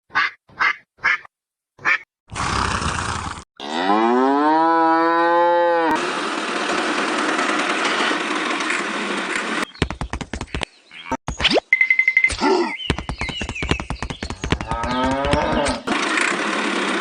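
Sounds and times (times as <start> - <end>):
cow mooing: 3.6 - 6.0
quick run of clicks: 7.5 - 10.7, 12.8 - 17.0.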